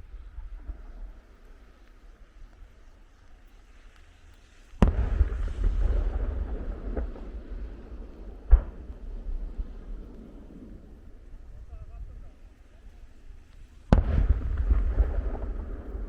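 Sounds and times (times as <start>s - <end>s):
rumble and crackle: 0.0s - 16.0s
firework bangs: 4.6s - 12.5s, 13.6s - 16.0s.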